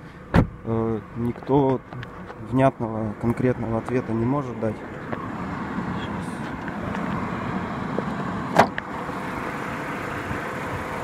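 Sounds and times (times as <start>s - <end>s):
car engine idling: 0.0s - 11.0s
engine ticking and crackling: 0.0s - 11.0s.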